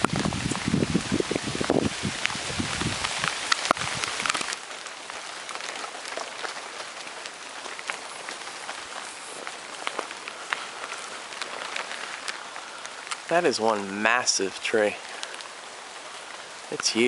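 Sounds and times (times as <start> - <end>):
rain falling: 0.0 - 17.0
raindrops ticking close by: 0.0 - 17.0.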